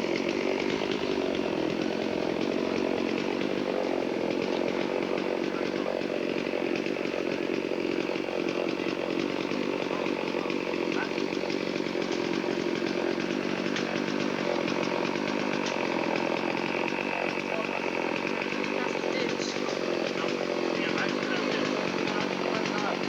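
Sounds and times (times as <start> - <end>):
chainsaw engine running: 0.0 - 23.0.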